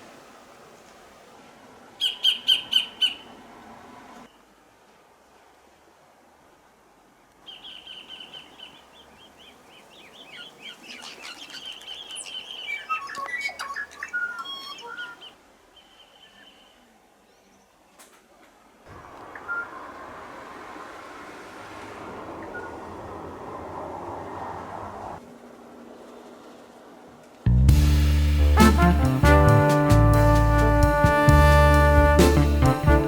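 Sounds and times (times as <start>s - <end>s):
steady rushing hiss: 0.0s - 2.0s
bird singing trills and whistles: 2.0s - 3.2s, 7.5s - 16.8s.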